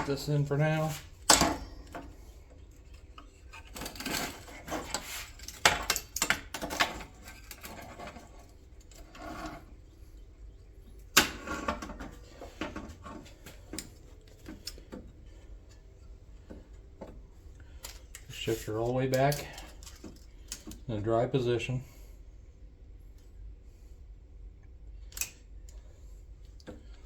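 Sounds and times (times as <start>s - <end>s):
metal parts clanking: 0.0s - 2.1s, 3.4s - 9.7s.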